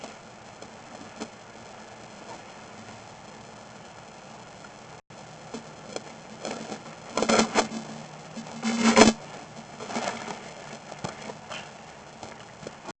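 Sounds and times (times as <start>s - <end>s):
faint steady hum: 0.0s - 12.9s
scraping and crackling: 5.5s - 12.9s.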